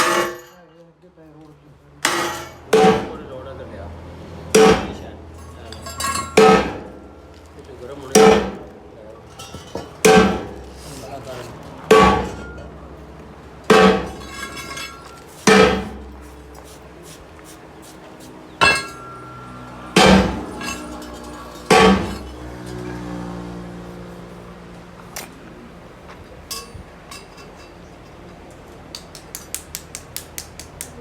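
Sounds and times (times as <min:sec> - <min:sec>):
heavy hammer blows on metal: 0:00.0 - 0:00.5, 0:02.1 - 0:03.3, 0:04.5 - 0:07.2, 0:08.1 - 0:12.7, 0:13.7 - 0:22.9
short metallic ring: 0:18.6 - 0:22.4.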